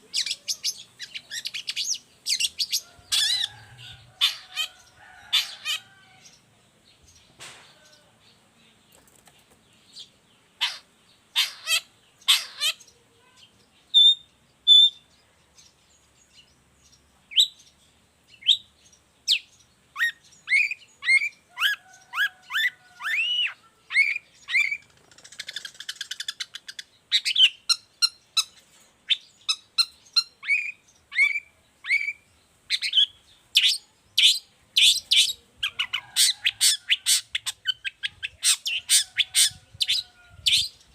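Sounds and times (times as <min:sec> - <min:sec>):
bird chirping and whistling: 0:14.0 - 0:15.0.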